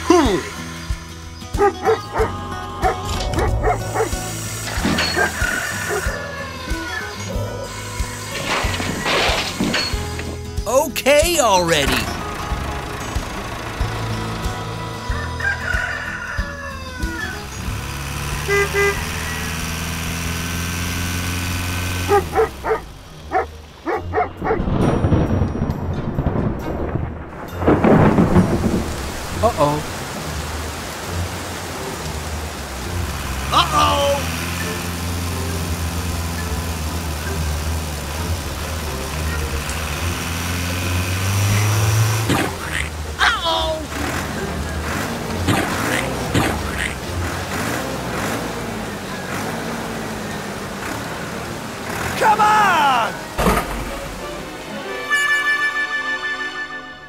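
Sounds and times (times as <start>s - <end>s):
rain: 0.0s - 10.6s, 11.8s - 57.0s
vehicle engine running: 0.0s - 10.6s, 11.5s - 24.6s, 27.6s - 54.6s
thunder: 24.6s - 29.4s.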